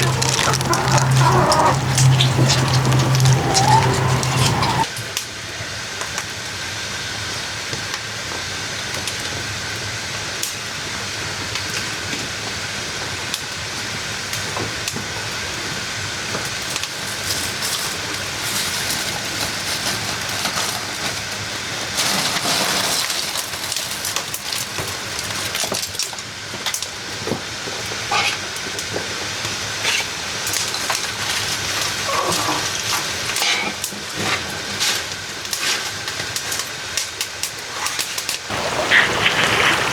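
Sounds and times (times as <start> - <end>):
wood fire popping: 0.0 - 4.9, 34.3 - 39.9
dough sizzling in hot oil: 16.1 - 39.9.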